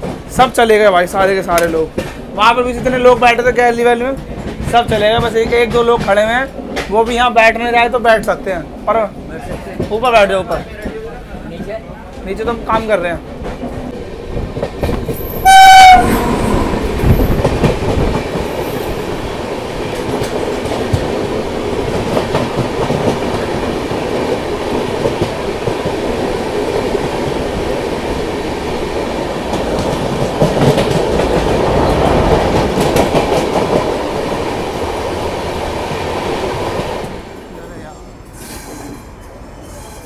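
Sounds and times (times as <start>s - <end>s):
wheels clacking over rail joints: 0.0s - 7.7s, 8.7s - 37.4s
train coach rumble and rattle: 0.0s - 40.0s
high-pitched horn tone: 15.4s - 16.7s.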